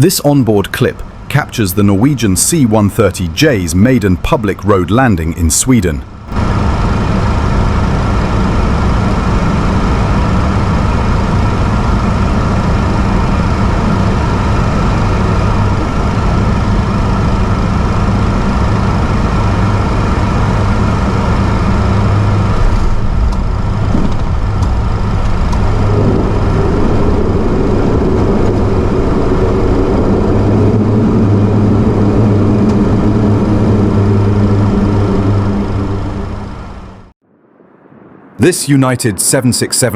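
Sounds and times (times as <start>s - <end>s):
turboprop engines droning: 0.0s - 39.9s
higher tone: 25.6s - 39.6s.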